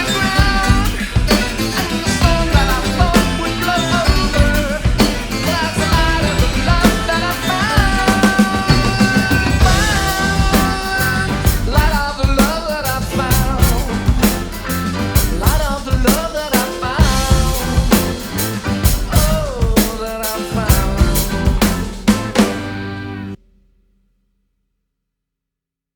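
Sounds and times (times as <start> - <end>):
rock song with singing: 0.0 - 23.4
drum kit playing: 0.0 - 23.6
snare and rimshot hits: 21.2 - 22.9.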